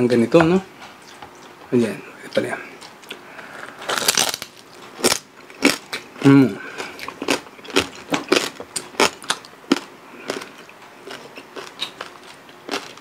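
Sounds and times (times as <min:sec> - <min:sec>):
crunching crispy pork skin: 0:03.4 - 0:13.0.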